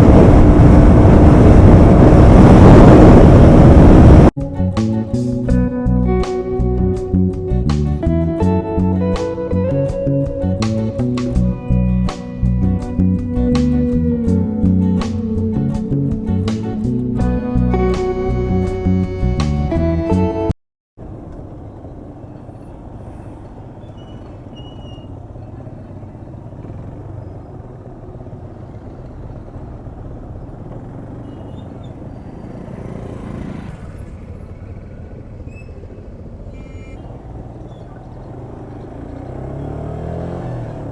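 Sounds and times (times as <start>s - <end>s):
wind noise: 0.0s - 4.3s
motorcycle engine running: 0.0s - 19.2s, 21.0s - 40.9s
road noise: 0.0s - 40.9s.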